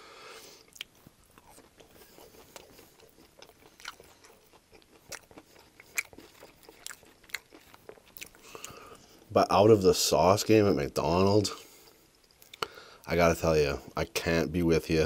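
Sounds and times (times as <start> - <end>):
chewing crunchy food: 0.6 - 9.3, 11.9 - 12.8.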